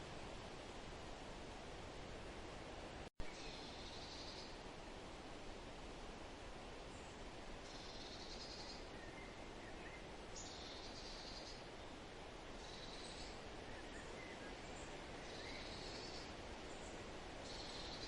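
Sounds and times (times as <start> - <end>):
faint chirps: 7.0 - 12.0, 12.6 - 18.0.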